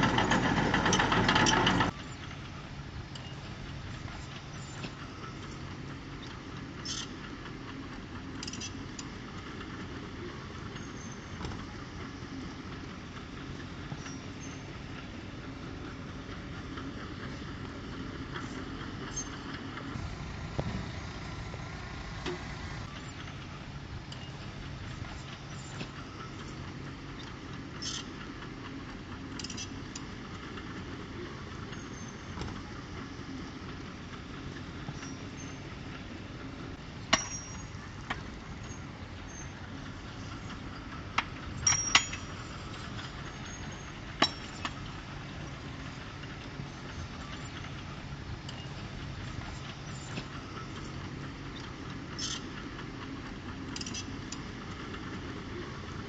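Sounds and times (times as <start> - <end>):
diesel engine running: 0.0 - 56.0
sharp metallic clanks: 37.0 - 38.8, 40.2 - 45.6.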